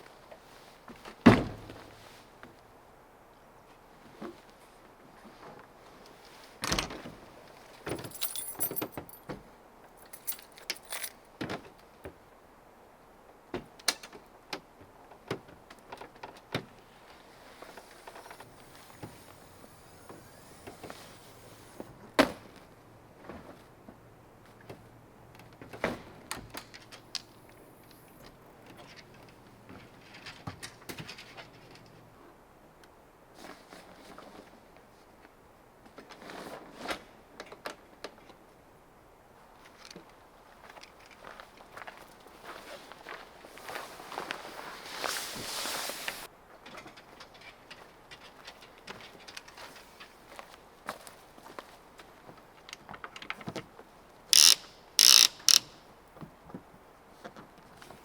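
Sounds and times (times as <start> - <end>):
clicks and knocks of gear: 7.9 - 9.3, 10.0 - 11.8, 54.3 - 55.7
light metallic jingling: 7.9 - 9.3, 10.0 - 11.2.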